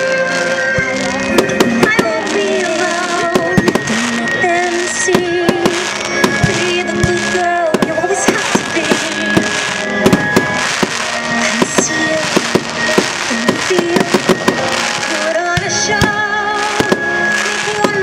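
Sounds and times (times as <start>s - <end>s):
fireworks bangs and crackles: 0.0s - 18.0s
loud music with singing: 0.0s - 18.0s.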